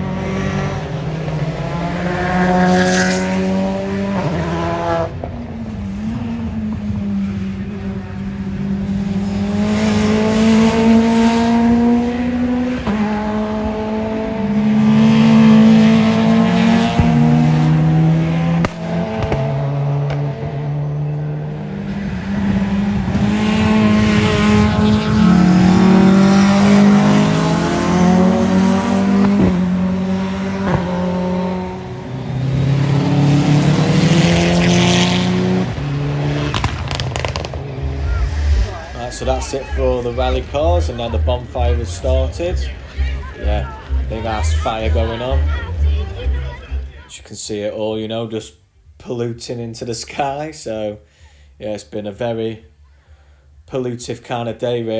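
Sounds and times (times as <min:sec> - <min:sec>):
rally car engines revving: 0:00.0 - 0:47.7
sharp cracks: 0:18.6 - 0:19.5, 0:36.5 - 0:38.8.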